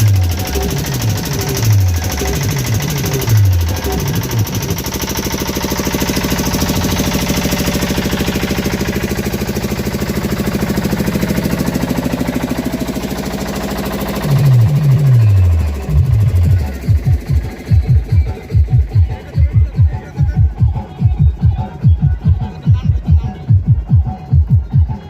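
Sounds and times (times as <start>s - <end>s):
falling bass drops: 0.0s - 24.9s
fast buzzing electronic pulse: 11.2s - 18.8s.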